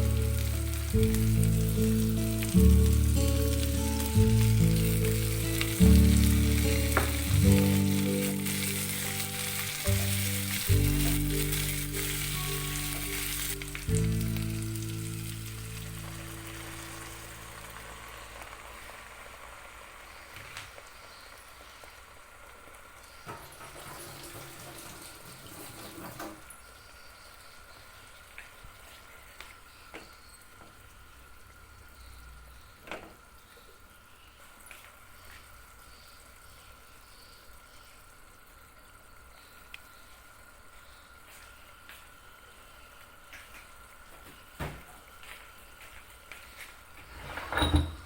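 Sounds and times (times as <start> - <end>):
soft music: 0.0 - 18.8
food sizzling in a pan: 0.0 - 25.8.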